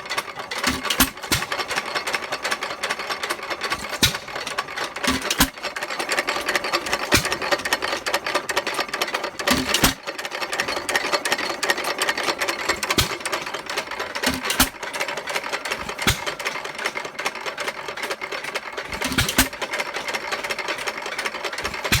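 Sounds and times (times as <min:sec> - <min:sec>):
single-cylinder engine clattering: 0:00.0 - 0:22.0
engine firing stroke: 0:02.5 - 0:20.6.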